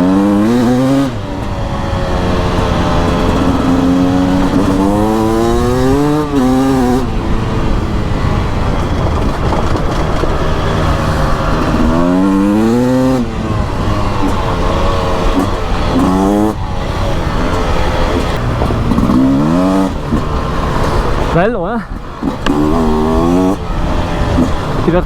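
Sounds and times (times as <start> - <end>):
two-stroke engine revving: 0.0 - 25.0.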